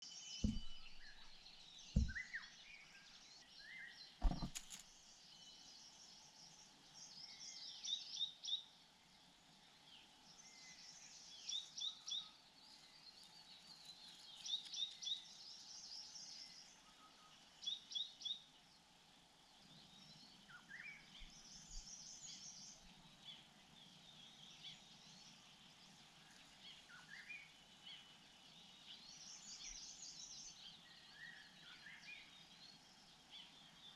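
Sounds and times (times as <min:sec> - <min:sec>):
birds chirping: 0:00.1 - 0:08.2, 0:19.5 - 0:33.9
sharp thumps: 0:00.4 - 0:02.3, 0:04.2 - 0:04.9.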